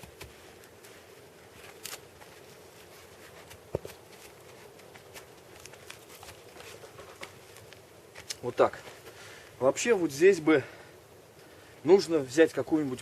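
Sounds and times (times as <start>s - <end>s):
logs clicking and rustling: 0.0s - 8.6s.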